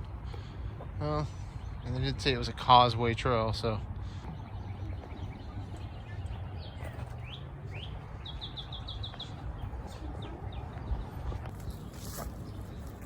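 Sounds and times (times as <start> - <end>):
songbird singing: 0.2 - 13.0.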